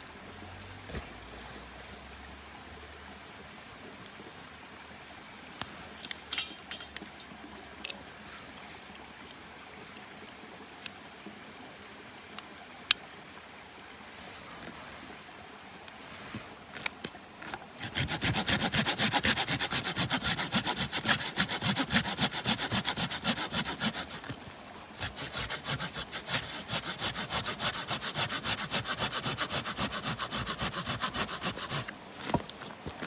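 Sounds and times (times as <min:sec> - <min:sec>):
hand saw cutting wood: 0:17.8 - 0:32.5.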